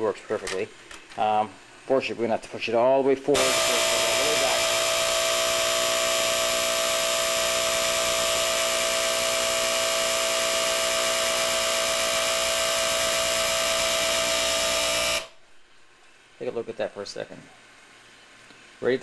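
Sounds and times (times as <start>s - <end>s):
small electric motor whine: 3.4s - 15.4s.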